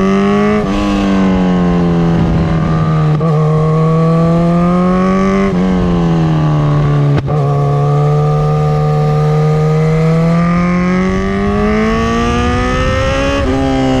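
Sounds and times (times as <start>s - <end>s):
motorcycle engine revving loud: 0.0s - 14.0s.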